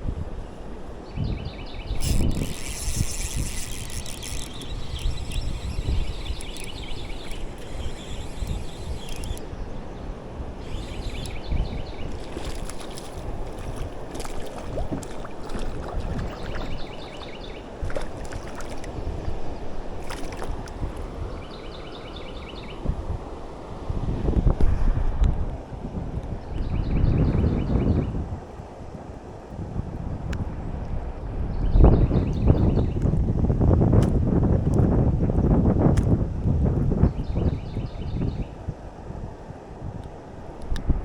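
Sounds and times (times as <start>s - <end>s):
wind buffeting microphone: 0.0s - 41.0s
creek water flowing: 1.8s - 24.1s.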